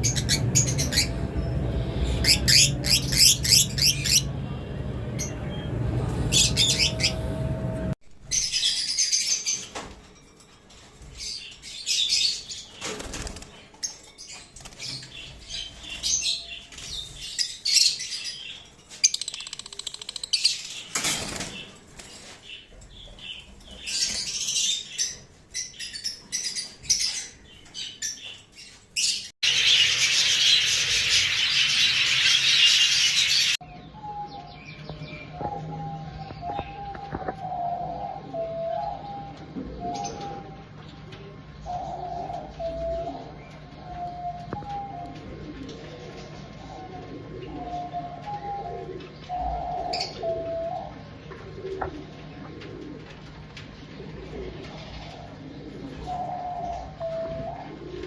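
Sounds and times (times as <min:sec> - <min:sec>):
pet birds chirping and squawking: 0:00.0 - 0:04.4, 0:05.1 - 0:09.7, 0:29.0 - 0:33.6
dense bird chatter: 0:00.0 - 0:07.9.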